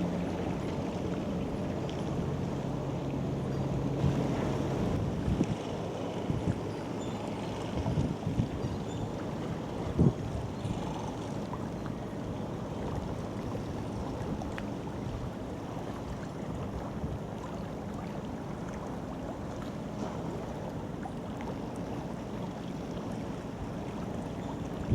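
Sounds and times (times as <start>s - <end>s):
ship rumbling past: 0.0s - 24.9s
water noise: 0.0s - 24.9s
wind noise: 4.0s - 6.7s, 7.7s - 8.8s, 9.9s - 10.8s.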